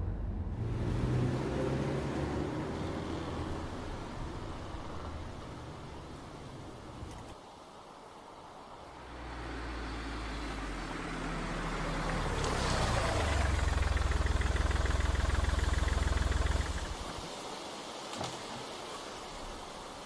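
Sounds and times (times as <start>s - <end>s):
car engine humming: 8.8s - 17.3s.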